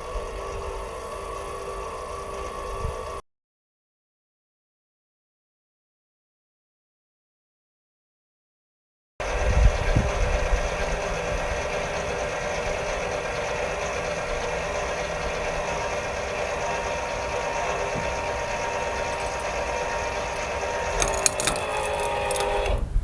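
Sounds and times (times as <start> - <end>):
electric jack motor running: 0.0 - 3.2, 9.2 - 22.9.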